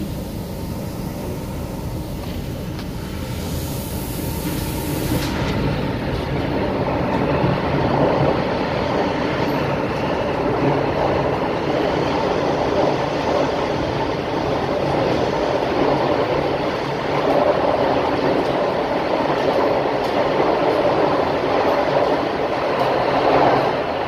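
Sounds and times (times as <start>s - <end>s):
high hiss: 0.0s - 6.1s
train rumble: 0.0s - 24.0s.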